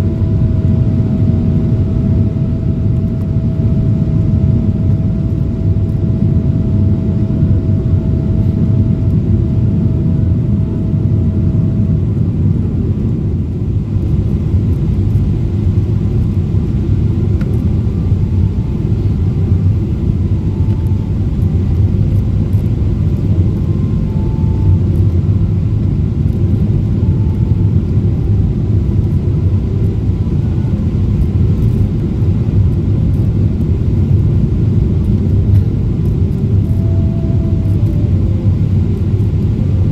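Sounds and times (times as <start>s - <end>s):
airplane engines and airflow rumble: 0.0s - 39.9s
faint steady hum: 0.0s - 39.9s.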